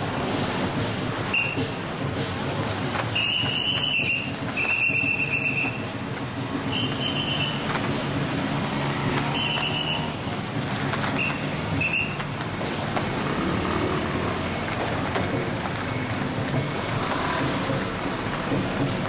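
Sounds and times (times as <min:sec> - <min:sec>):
short whistle blasts: 0:01.3 - 0:01.6, 0:03.1 - 0:05.8, 0:06.7 - 0:07.6, 0:09.3 - 0:10.1, 0:11.2 - 0:12.2.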